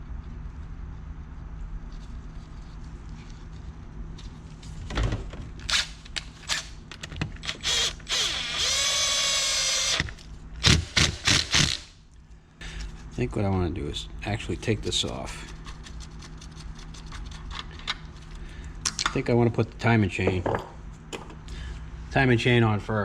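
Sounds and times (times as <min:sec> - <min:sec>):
power tool motor whining: 0:07.4 - 0:11.9.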